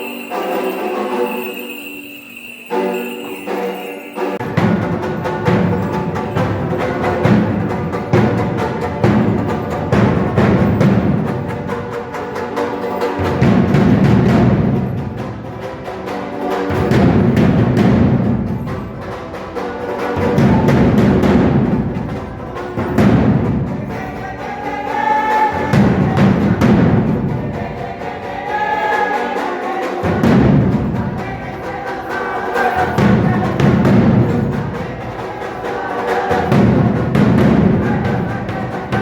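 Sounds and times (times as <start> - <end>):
high held tone: 0.0 - 4.6
drums beating fast rhythm: 4.4 - 39.0.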